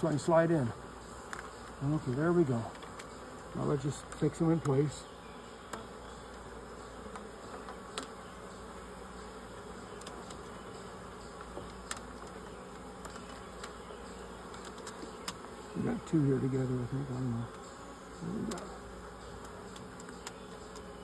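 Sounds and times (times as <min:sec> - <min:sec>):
honey bees buzzing: 0:00.0 - 0:21.0
faint clicks: 0:19.3 - 0:20.9.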